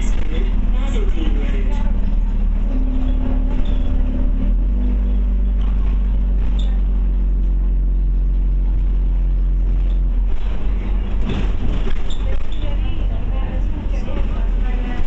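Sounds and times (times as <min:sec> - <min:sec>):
bus engine from inside cabin: 0:00.0 - 0:15.0.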